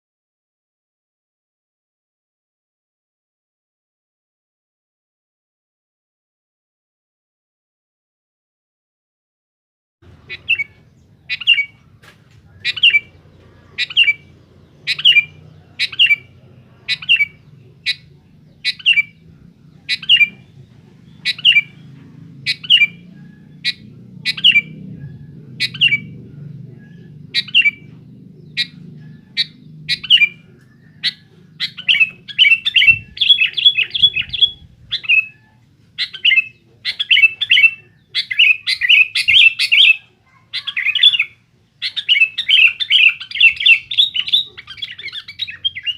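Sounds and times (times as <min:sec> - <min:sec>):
bird calling: 0:10.0 - 0:45.9.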